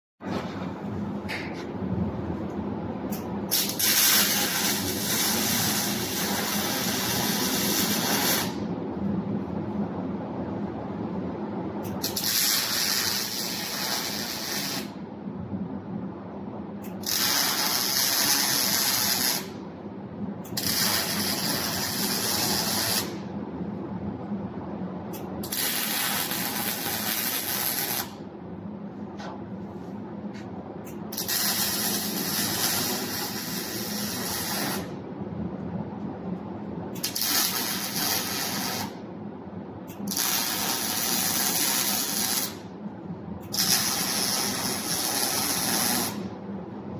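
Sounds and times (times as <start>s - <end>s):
low machine hum: 0.2s - 46.9s
welding arc sizzling: 3.1s - 8.7s, 11.9s - 15.0s, 16.8s - 19.6s, 20.5s - 23.3s, 25.1s - 28.2s, 30.9s - 35.0s, 37.0s - 39.0s, 39.9s - 42.7s, 43.4s - 46.4s.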